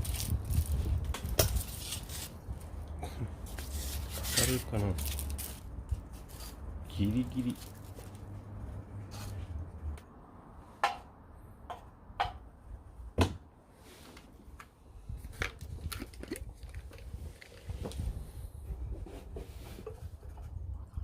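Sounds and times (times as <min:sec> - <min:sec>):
low rumble with small clicks: 0:14.6 - 0:18.9.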